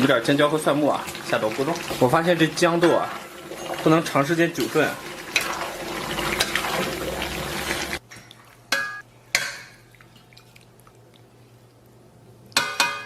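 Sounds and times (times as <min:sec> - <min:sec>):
stew bubbling: 0:00.0 - 0:08.6, 0:09.5 - 0:12.6.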